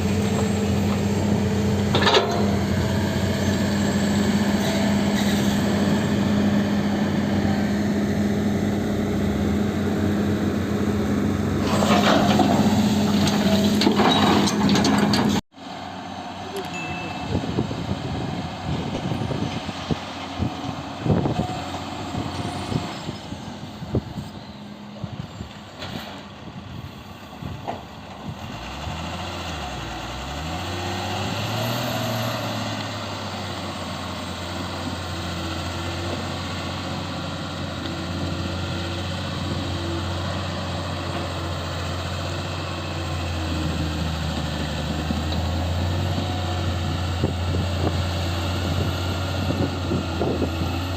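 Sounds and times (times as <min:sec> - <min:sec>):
heavy machine engine revving: 0:00.0 - 0:16.7, 0:17.3 - 0:50.9.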